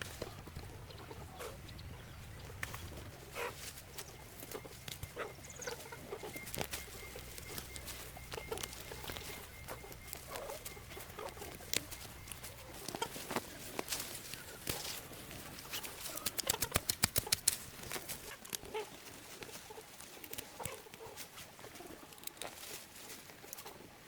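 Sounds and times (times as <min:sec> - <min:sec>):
faint animal calls: 0:00.0 - 0:17.4
faint steady high tone: 0:03.5 - 0:13.3.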